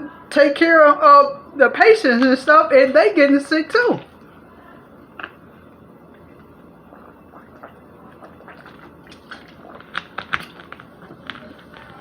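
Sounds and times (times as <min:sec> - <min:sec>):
person chewing food: 0:06.1 - 0:12.0.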